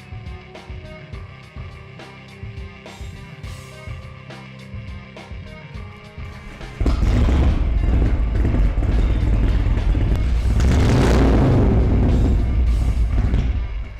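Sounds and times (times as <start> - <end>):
motorcycle engine deep rumble: 6.8 - 13.9.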